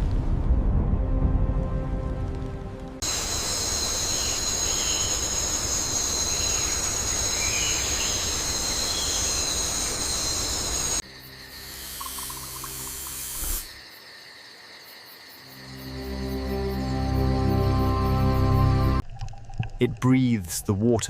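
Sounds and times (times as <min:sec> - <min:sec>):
music: 0:00.0 - 0:03.0, 0:11.0 - 0:13.5, 0:15.4 - 0:19.0
insects trilling: 0:03.0 - 0:19.5.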